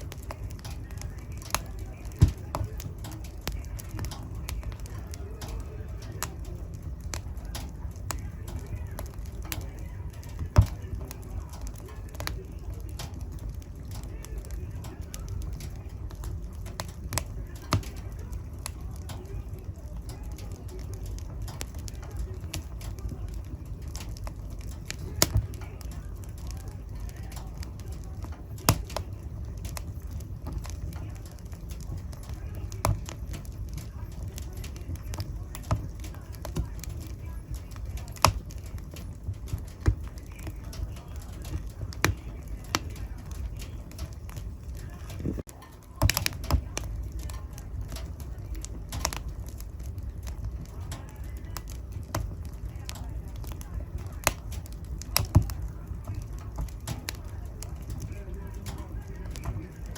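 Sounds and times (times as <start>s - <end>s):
flames rumbling: 0.0s - 59.9s
wood fire crackling and popping: 0.0s - 59.9s.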